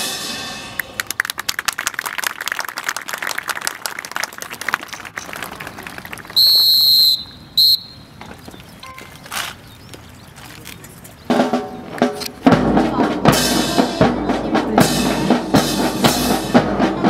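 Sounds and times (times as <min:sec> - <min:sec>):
whistle blasts: 0:06.4 - 0:08.1.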